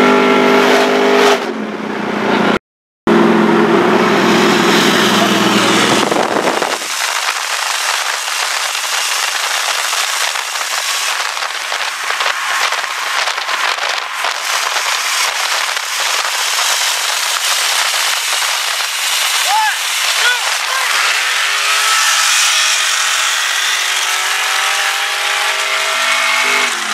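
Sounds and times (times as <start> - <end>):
car engine running: 3.1 - 26.9
dense crackling hiss: 5.8 - 22.0.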